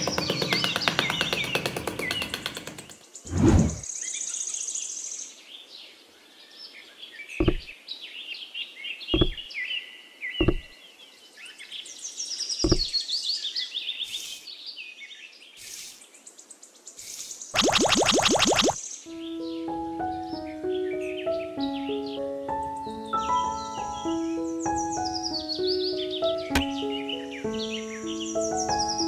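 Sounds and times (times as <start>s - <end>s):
songbirds chirping: 0.0s - 29.0s
dull knocks of clay on base: 7.4s - 7.7s, 9.2s - 9.5s, 10.4s - 10.7s, 12.6s - 12.9s.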